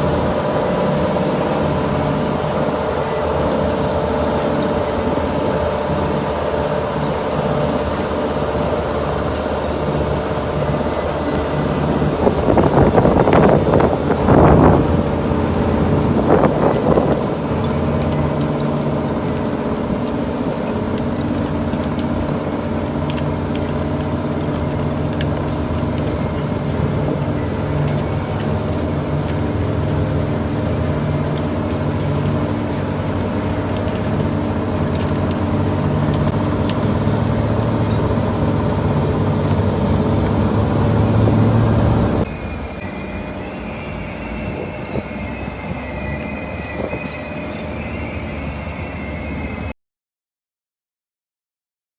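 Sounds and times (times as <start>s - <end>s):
heavy machinery droning: 0.0s - 49.7s
high-pitched machine squeal: 40.8s - 49.7s.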